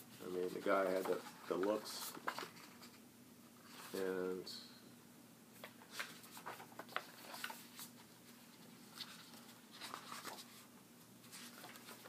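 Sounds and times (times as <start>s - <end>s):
paper pages rustling: 0.3s - 3.0s, 5.6s - 12.0s.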